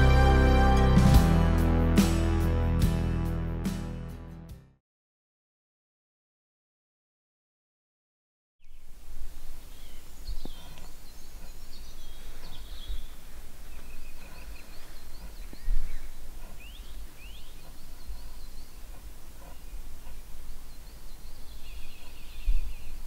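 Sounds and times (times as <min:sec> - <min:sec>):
birds chirping: 0:08.6 - 0:23.0.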